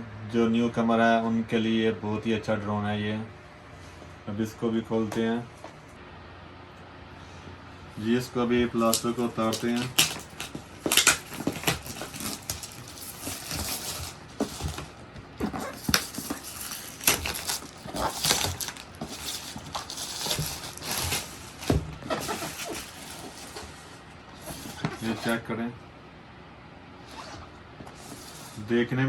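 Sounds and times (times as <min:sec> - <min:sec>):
plastic wrapping crinkling: 0:08.0 - 0:25.4, 0:27.1 - 0:28.7.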